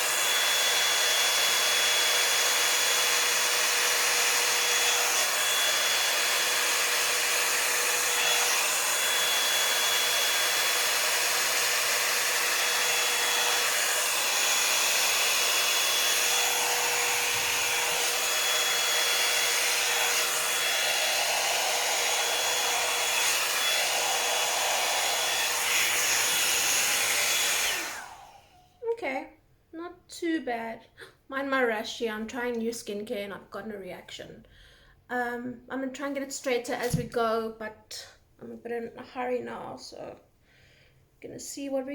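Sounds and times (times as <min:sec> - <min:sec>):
hot-air brush dryer blowing: 0:00.0 - 0:28.7.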